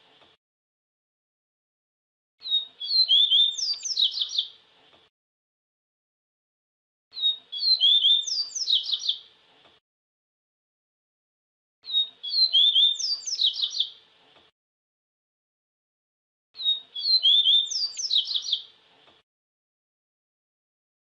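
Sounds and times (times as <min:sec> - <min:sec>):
bird singing high chirps: 0:02.4 - 0:04.6, 0:07.1 - 0:09.3, 0:11.8 - 0:14.0, 0:16.6 - 0:18.7.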